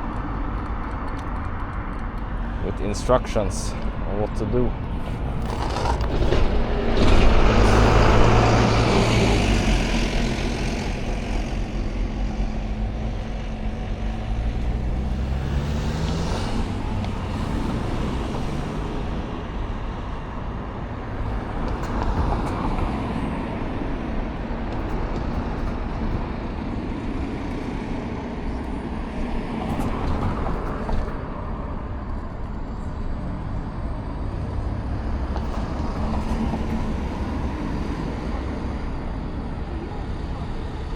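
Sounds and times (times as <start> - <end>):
road traffic passing: 0.0 - 40.9
engine accelerating: 2.3 - 22.3
loud vehicle passing: 2.5 - 20.0.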